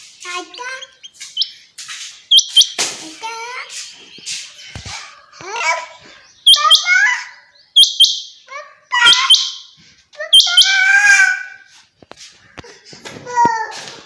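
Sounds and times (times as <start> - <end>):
low chirping: 0.0 - 10.8
quail calling: 2.3 - 2.8, 4.8 - 9.6.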